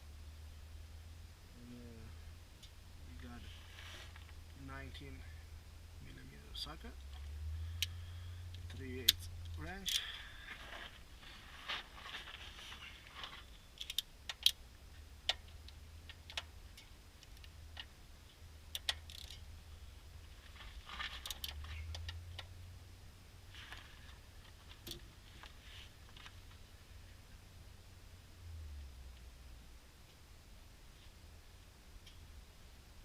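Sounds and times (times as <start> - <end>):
rustling: 1.6 - 5.5, 6.1 - 22.7, 23.3 - 27.4.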